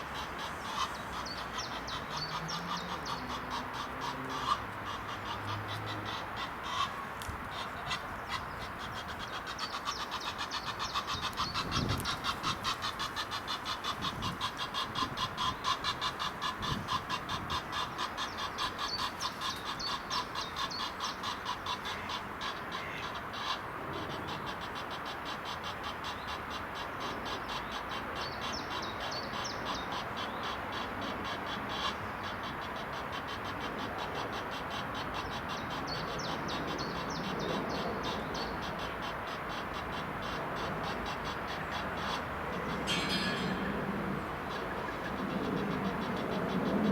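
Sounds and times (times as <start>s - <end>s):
rapid pulsing animal calls: 31.5s - 46.9s.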